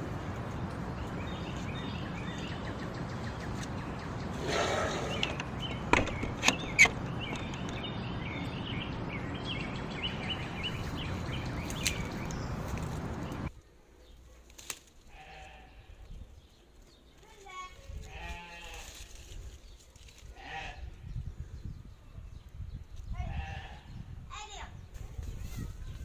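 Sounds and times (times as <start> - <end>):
small birds chirping: 0.0 - 26.0
sharp clicks: 5.1 - 7.8.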